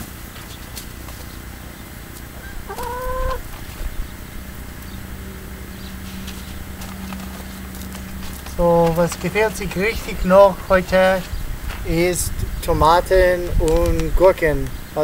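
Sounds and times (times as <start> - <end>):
drawn-out bird call: 0.5 - 10.4.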